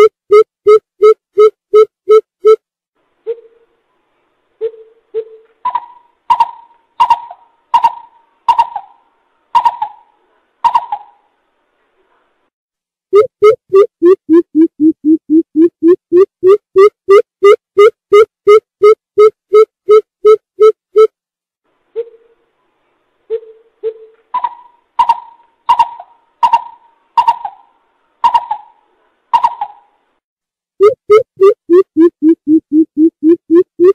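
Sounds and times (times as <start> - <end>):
bird hooting: 23.3 - 29.9.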